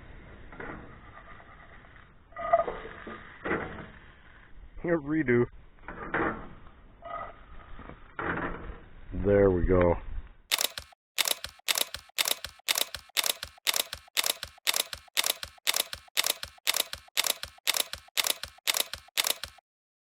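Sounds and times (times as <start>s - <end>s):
sharp mechanical clicks: 10.5s - 19.7s.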